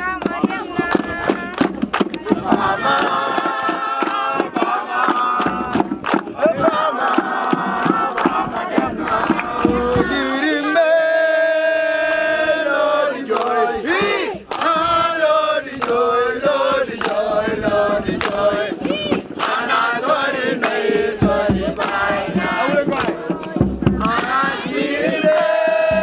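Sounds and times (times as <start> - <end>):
group chanting and singing: 0.0 - 26.0
sharp percussive hits: 20.6 - 26.0.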